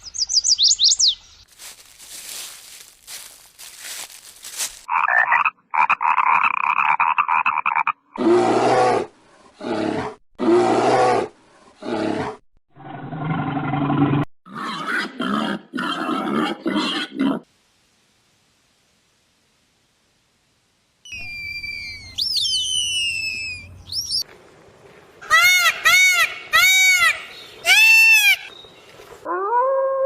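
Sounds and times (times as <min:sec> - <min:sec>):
loud animal roars: 0:08.2 - 0:14.3
high animal call: 0:21.1 - 0:24.2.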